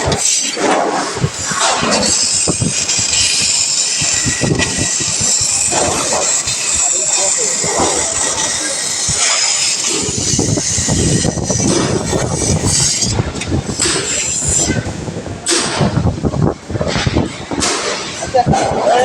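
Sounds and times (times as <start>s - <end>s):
machine grinding screech: 0.0s - 15.0s
machine rumble: 1.0s - 18.4s.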